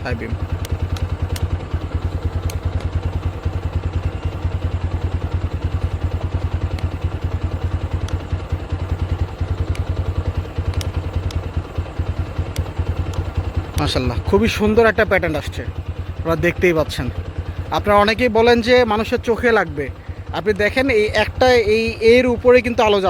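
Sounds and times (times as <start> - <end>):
motorcycle engine idling: 0.0 - 23.0
faint light ticks: 12.5 - 13.2.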